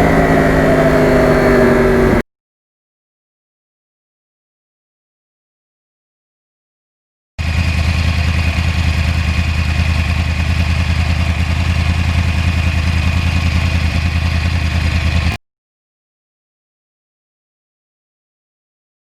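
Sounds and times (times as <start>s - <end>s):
motorcycle engine running: 0.0s - 2.2s, 7.4s - 15.4s.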